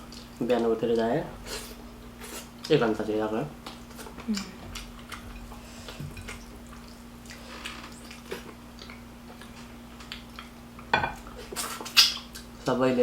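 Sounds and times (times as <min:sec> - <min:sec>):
chewing with clicks and smacks: 0:00.0 - 0:01.1, 0:03.6 - 0:12.5
steady low hum: 0:00.0 - 0:13.0.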